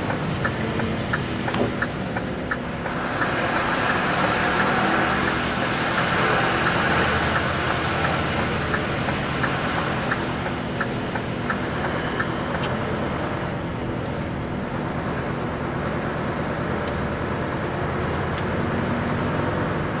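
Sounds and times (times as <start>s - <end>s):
turn signal ticking: 0.0s - 14.2s
vehicle engine running: 0.0s - 20.0s.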